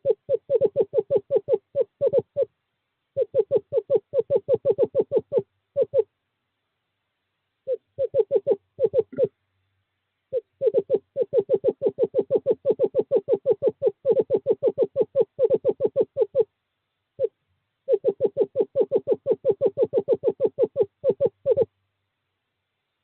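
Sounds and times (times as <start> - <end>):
screech owl hooting: 0.0 - 2.5, 3.2 - 6.1, 7.6 - 9.3, 10.3 - 16.5, 17.2 - 21.7.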